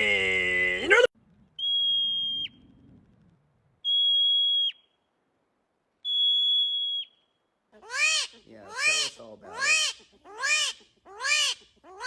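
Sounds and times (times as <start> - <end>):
high whistle-like tones: 1.6 - 2.6, 3.8 - 5.0, 6.0 - 7.4.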